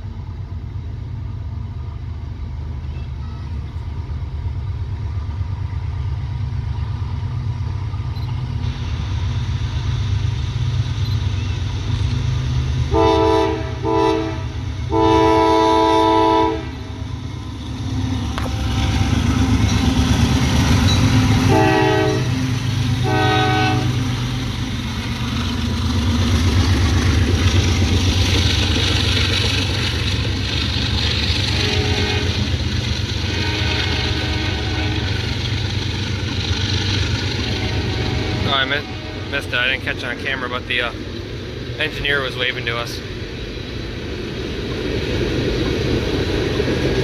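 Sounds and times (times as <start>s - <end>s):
train rumbling past: 0.0s - 47.0s
locomotive horn blasts: 12.9s - 17.0s, 18.0s - 24.2s, 31.4s - 32.6s, 33.2s - 35.3s, 37.4s - 39.8s.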